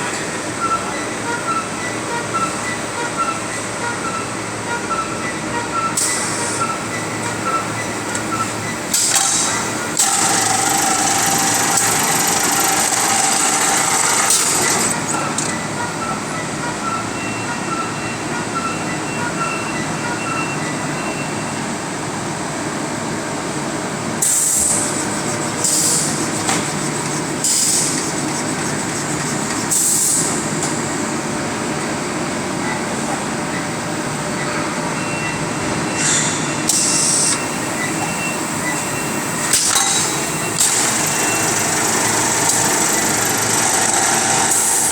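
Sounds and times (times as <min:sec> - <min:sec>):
bagging machine clatter: 0:06.1 - 0:15.6, 0:24.2 - 0:31.1, 0:36.7 - 0:44.9.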